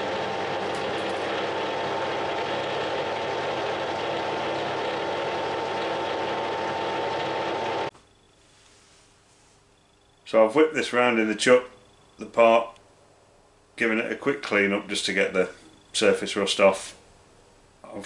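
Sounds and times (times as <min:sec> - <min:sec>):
workshop machine whining: 0:00.0 - 0:07.9.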